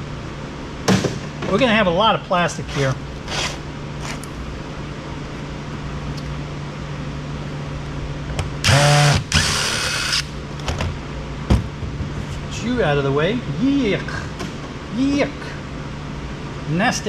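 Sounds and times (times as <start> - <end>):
steady low hum: 0.0 - 17.0
electric screwdriver whirring: 8.6 - 10.3.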